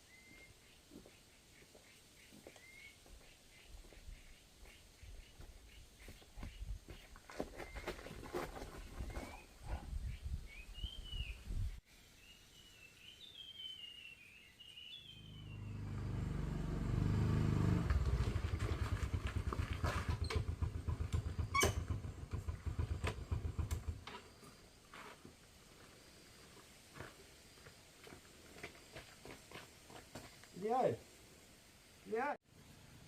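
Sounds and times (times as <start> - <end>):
small birds chirping: 0.0 - 16.5.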